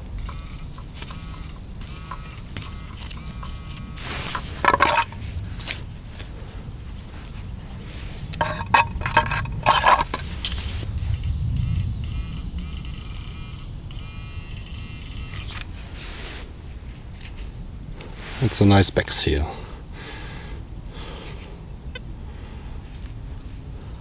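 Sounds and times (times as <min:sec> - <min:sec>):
metal detector signal tones: 0:00.0 - 0:05.8, 0:08.3 - 0:16.1
spade crunching into soil: 0:00.0 - 0:06.4, 0:07.1 - 0:10.9
wind and rain rumble: 0:03.2 - 0:14.2.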